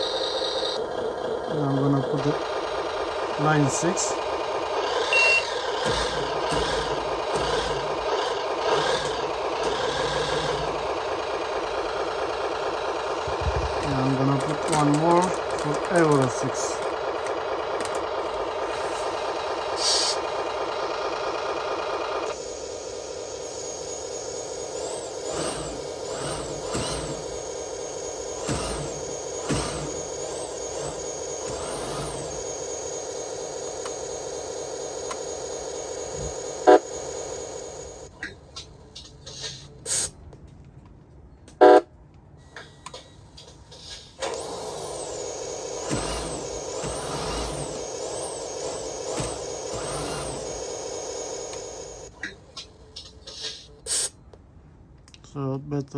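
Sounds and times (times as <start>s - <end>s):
simulated truck engine from speaker: 0.0s - 55.9s
high rising and falling whistle: 5.0s - 5.6s, 22.4s - 38.1s, 44.4s - 52.1s.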